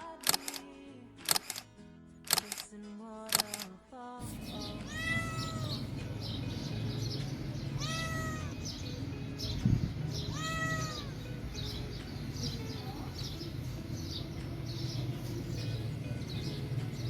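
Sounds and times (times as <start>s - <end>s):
cat meowing: 4.5s - 5.9s, 7.8s - 8.6s, 10.2s - 11.2s.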